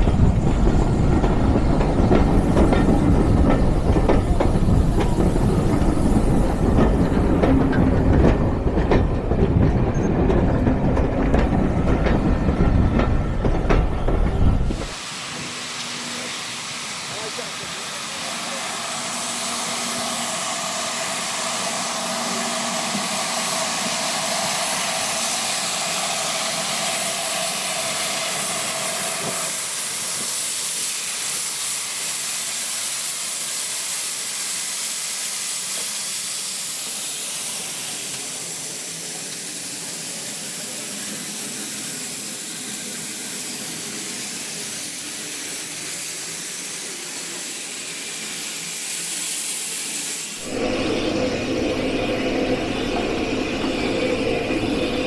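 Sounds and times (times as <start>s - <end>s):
steam hissing: 0.0s - 55.0s
low tone: 50.4s - 55.0s.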